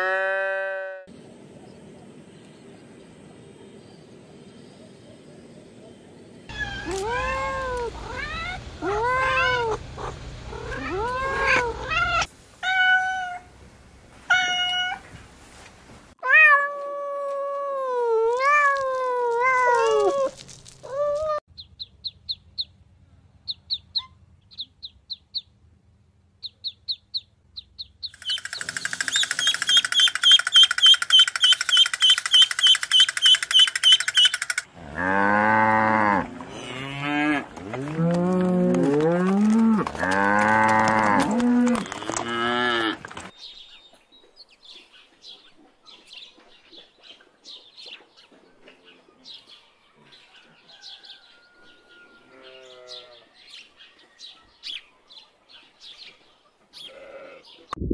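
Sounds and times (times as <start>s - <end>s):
cow mooing: 0.0s - 1.1s, 34.8s - 43.0s
ducklings peeping: 21.6s - 22.8s, 23.5s - 25.5s, 26.4s - 34.6s
high bird calls: 28.0s - 34.7s.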